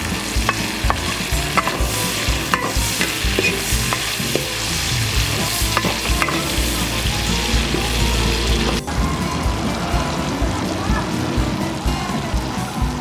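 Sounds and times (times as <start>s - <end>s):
spatula scraping a pan: 0.0s - 8.8s
oil sizzling: 0.0s - 13.0s.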